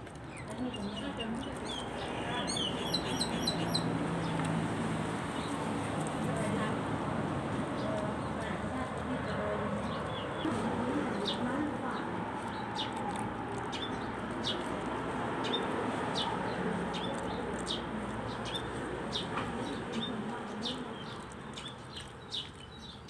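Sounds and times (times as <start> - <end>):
small bird chirping: 0.4 - 4.4.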